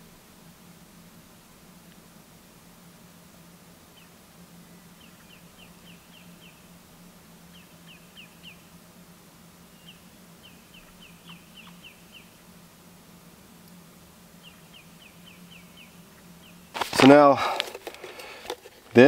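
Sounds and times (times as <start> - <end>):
steady low hum: 0.0 - 19.0
faint bird song: 3.6 - 12.8, 13.4 - 17.4.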